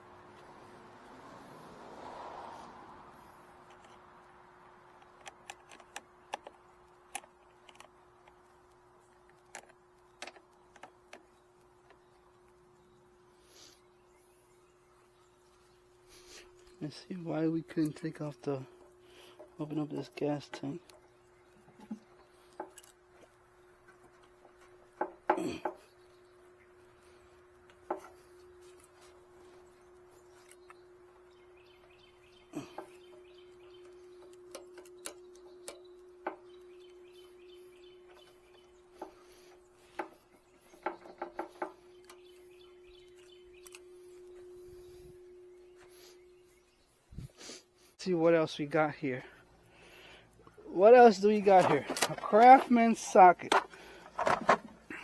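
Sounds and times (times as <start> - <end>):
faint steady hum: 3.0 - 55.0
knocks and clicks of tools: 4.8 - 12.0, 27.7 - 29.2, 38.1 - 42.4, 53.4 - 55.0
metallic clicks and taps: 4.9 - 11.3.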